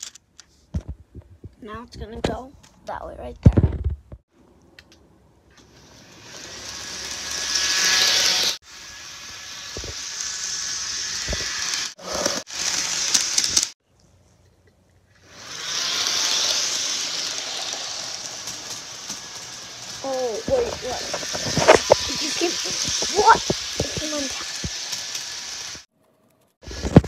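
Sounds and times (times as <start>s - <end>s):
model train running on track: 5.8s - 11.9s, 12.6s - 13.6s, 15.5s - 25.8s.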